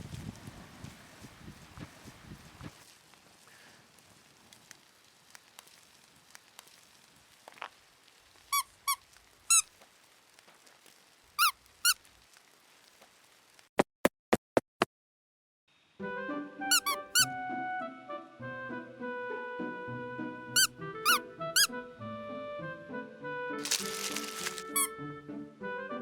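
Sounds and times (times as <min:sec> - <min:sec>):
small ticks: 0:02.7 - 0:13.7
high pitch-bending squeaks: 0:16.7 - 0:17.3, 0:20.6 - 0:21.7, 0:23.6 - 0:24.9.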